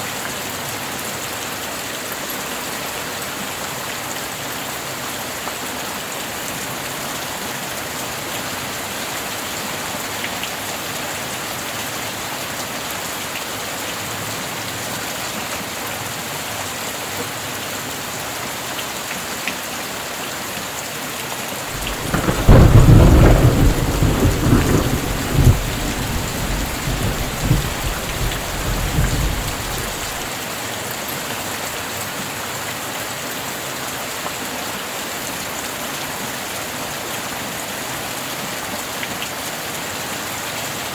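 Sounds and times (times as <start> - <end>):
heavy rain falling: 21.6 - 30.7
thunder rumbling: 21.7 - 30.3.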